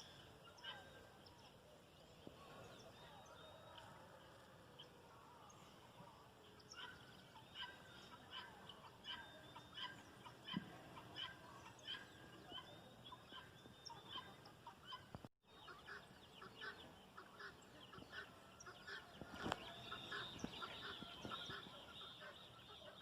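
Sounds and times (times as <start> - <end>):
faint birdsong: 0.0 - 23.0
fowl calling: 6.6 - 23.0.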